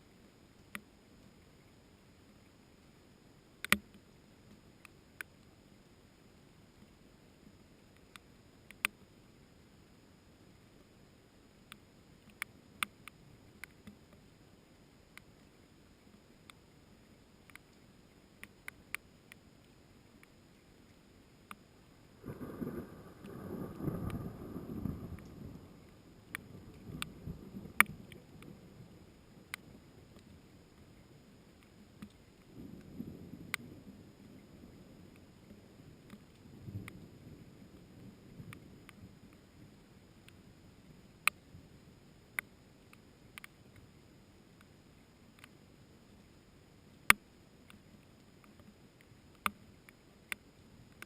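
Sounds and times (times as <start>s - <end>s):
faint steady hiss: 0.0s - 51.0s
raindrops ticking: 3.6s - 4.6s, 18.4s - 30.9s.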